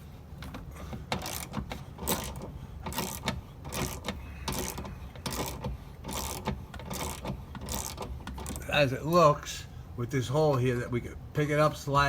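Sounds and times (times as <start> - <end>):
socket ratchet clicking: 1.1 - 8.6.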